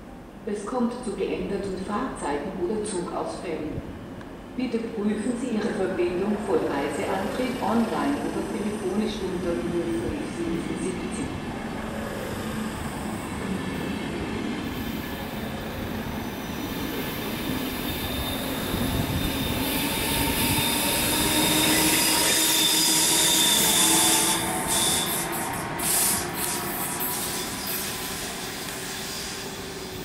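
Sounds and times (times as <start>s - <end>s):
passenger train rolling past: 0.0s - 30.0s
wheel squeal: 19.1s - 25.3s.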